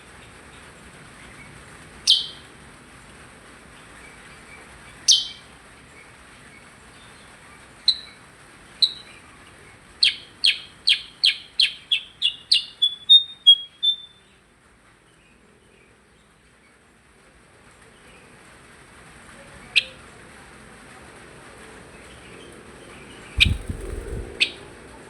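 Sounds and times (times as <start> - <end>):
songbird sharp chips: 23.4 - 24.3.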